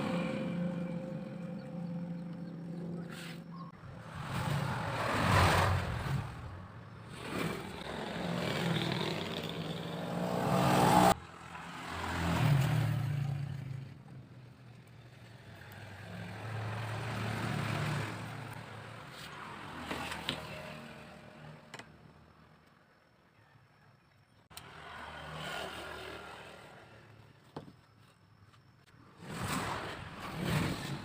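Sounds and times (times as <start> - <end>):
vehicle engine passing: 0.0 - 14.0.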